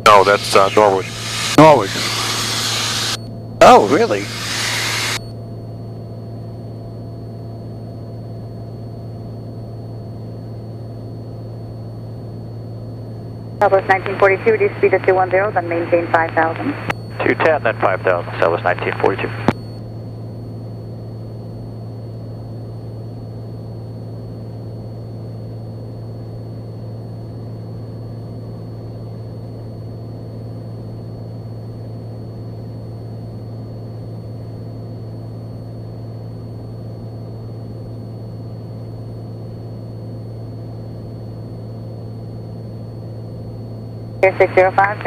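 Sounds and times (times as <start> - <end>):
propeller plane engine droning: 0.0 - 10.9, 11.6 - 29.6
faint high whine: 0.0 - 45.0.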